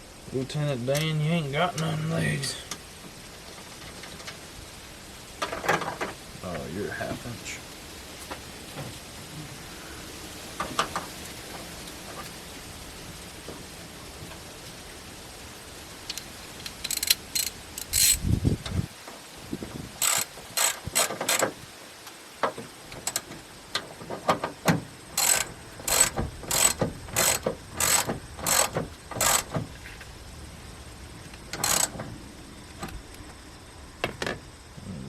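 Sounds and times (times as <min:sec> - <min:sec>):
socket ratchet clicking: 0:16.1 - 0:18.2, 0:20.0 - 0:21.5, 0:23.0 - 0:23.3, 0:25.2 - 0:29.6, 0:31.5 - 0:32.0.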